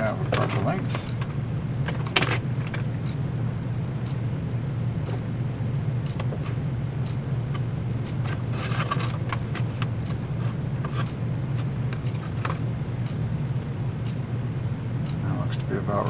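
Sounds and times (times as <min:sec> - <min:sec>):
low machine hum: 0:00.0 - 0:16.0
scraping rustles: 0:08.2 - 0:12.6.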